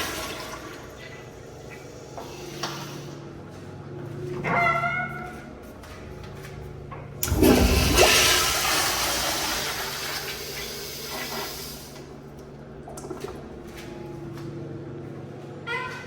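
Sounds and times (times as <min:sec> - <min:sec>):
toilet flushing: 0:00.0 - 0:03.2, 0:07.2 - 0:13.9.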